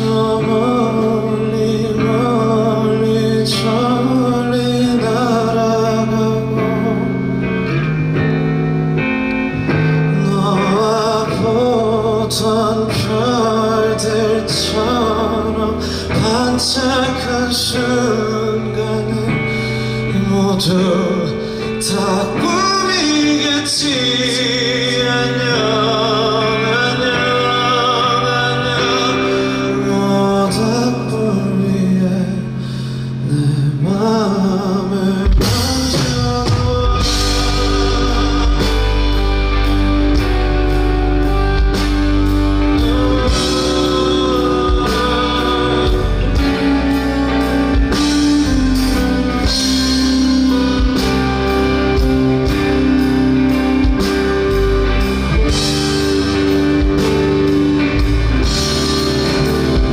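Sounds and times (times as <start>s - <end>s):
bass and guitar: 0.0s - 59.9s
drums: 0.0s - 59.9s
soft sustained backing: 0.0s - 59.9s
wavering sung melody: 36.5s - 59.9s.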